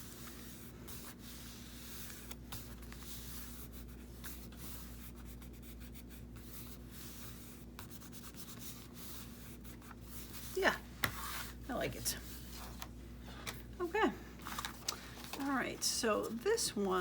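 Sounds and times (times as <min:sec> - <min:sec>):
paper rubbing and scratching: 0:00.0 - 0:11.6
steady low hum: 0:00.0 - 0:17.0.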